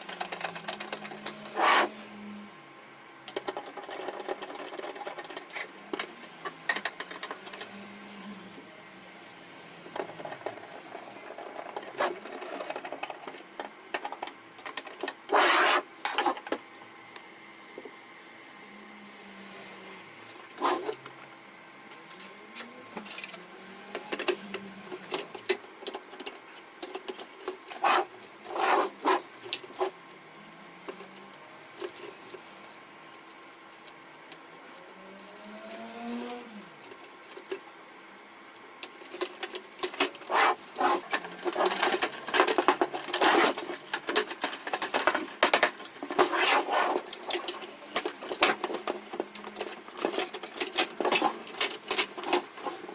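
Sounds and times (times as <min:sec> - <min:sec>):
plastic and metal parts clicking: 0:41.0 - 0:46.3, 0:46.9 - 0:52.9.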